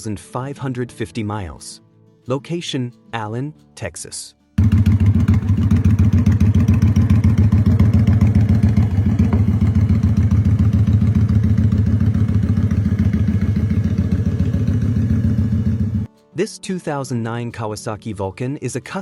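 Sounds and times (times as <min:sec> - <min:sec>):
motorcycle engine pulsing exhaust: 0:04.6 - 0:16.1.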